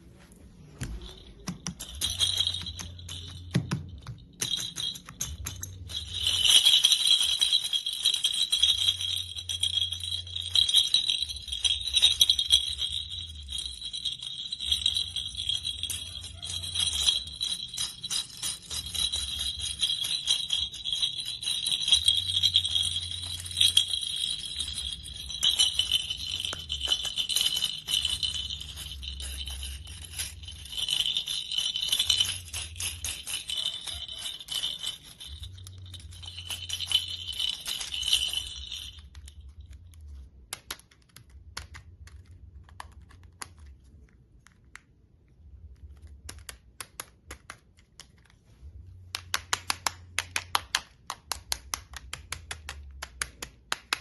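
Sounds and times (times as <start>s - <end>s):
toy jingling and rattling: 0.8s - 41.3s.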